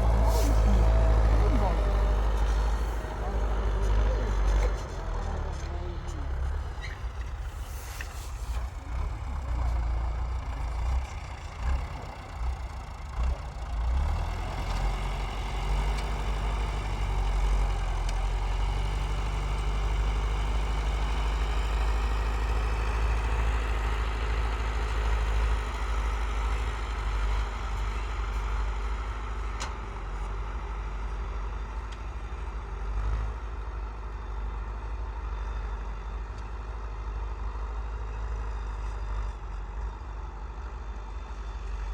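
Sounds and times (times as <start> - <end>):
tractor engine droning: 0.0 - 32.9.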